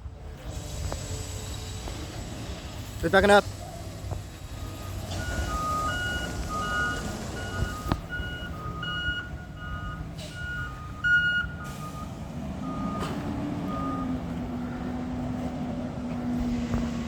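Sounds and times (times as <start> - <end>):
diesel engine rumble: 0.0 - 17.0
reversing alarm beeps: 4.5 - 14.4.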